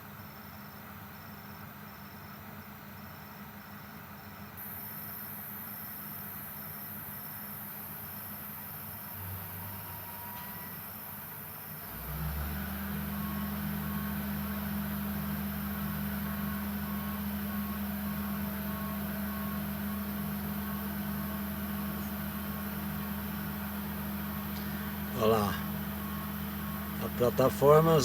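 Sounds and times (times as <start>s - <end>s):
heavy vehicle engine idling: 11.0s - 28.0s.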